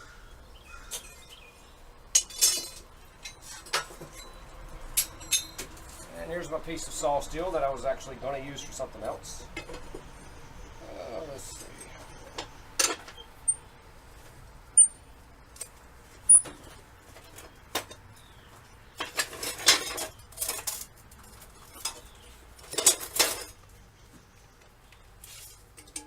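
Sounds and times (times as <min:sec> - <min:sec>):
metal clinking and ringing: 0:02.1 - 0:06.0
metal scraping and sliding: 0:02.2 - 0:04.4, 0:19.0 - 0:23.6.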